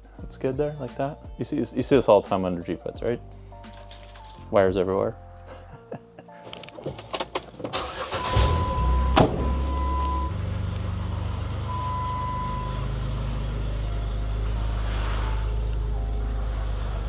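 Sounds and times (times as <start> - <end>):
engine starting and idling: 7.2 - 17.0.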